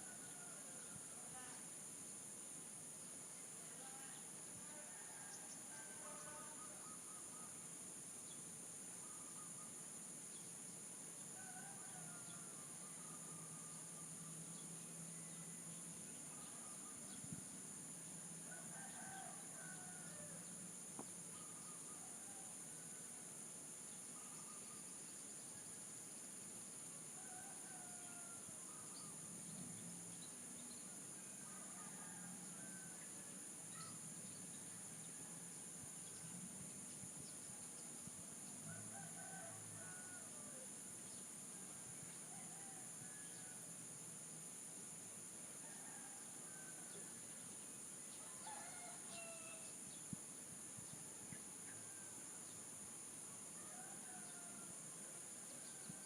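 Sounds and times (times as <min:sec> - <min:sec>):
distant roosters crowing: 0:11.3 - 0:14.4, 0:18.2 - 0:20.6, 0:27.2 - 0:28.9, 0:31.2 - 0:33.9, 0:38.7 - 0:40.7, 0:41.8 - 0:43.7, 0:45.6 - 0:47.2, 0:48.2 - 0:49.8, 0:53.6 - 0:54.8.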